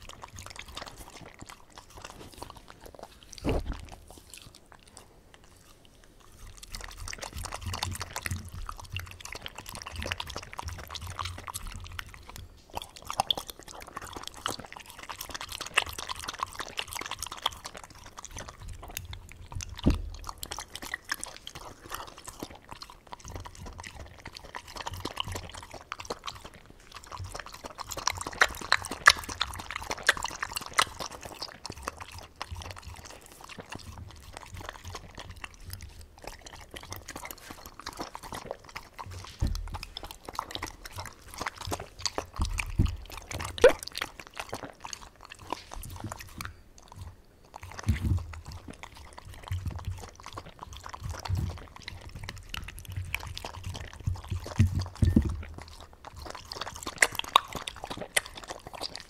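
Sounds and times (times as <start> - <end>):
dog chewing and lapping food: 0.0 - 59.0
low thumps against a bowl: 39.4 - 40.0.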